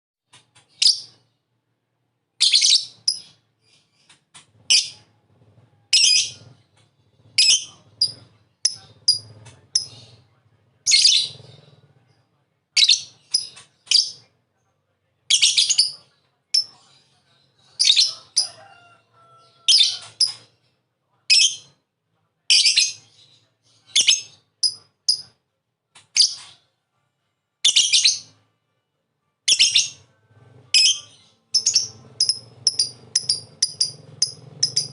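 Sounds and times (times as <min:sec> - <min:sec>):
lovebird chattering: 0:07.4 - 0:10.0, 0:23.9 - 0:25.3, 0:30.8 - 0:34.9.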